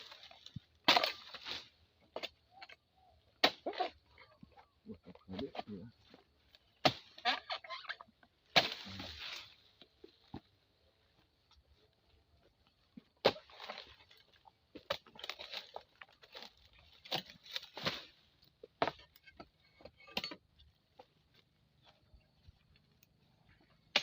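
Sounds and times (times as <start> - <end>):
dry vegetation crunching and snapping: 0.0 - 24.0.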